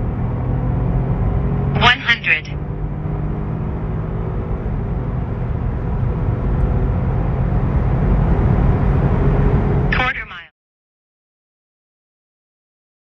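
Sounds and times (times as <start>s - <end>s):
tyre and road noise: 0.0s - 10.0s
car engine running: 0.0s - 10.2s.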